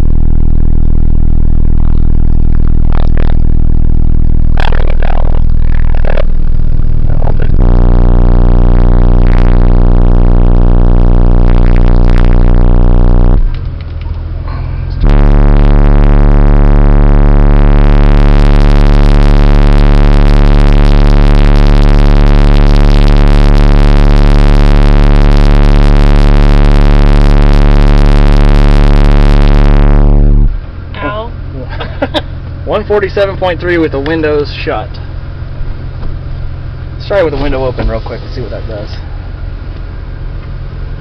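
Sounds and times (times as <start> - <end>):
distorted bass test tone: 0.0 - 41.0.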